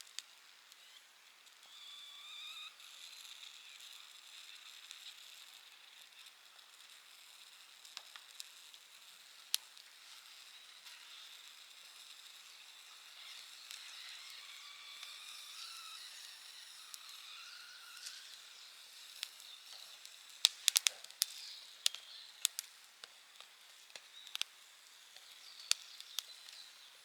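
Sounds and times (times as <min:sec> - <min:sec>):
fire hissing with whistles: 0:00.0 - 0:27.0
fire crackling with sharp pops: 0:04.3 - 0:15.3, 0:17.9 - 0:27.0.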